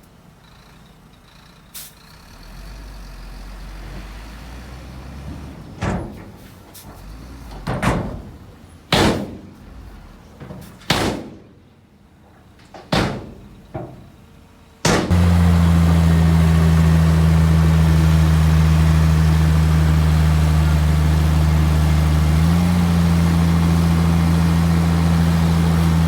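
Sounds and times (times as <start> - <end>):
low engine rumble: 0.0 - 26.0
loud bangs: 14.8 - 15.8.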